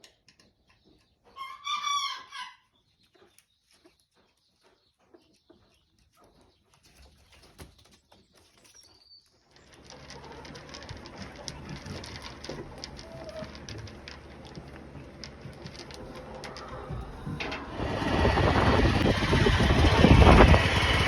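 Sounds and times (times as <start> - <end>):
faint clucks and clicks: 9.6 - 17.7.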